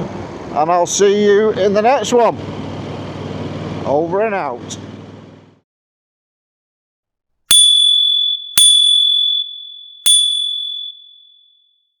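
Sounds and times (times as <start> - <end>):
high bell-like ding: 7.5 - 11.5.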